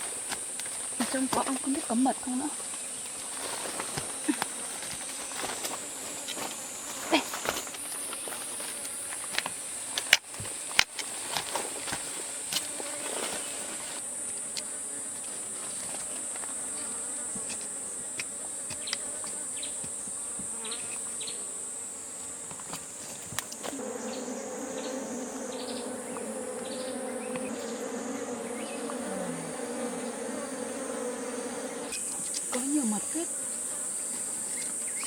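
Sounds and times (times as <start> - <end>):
bees buzzing: 0.0 - 35.0
high-pitched insect drone: 23.6 - 35.0.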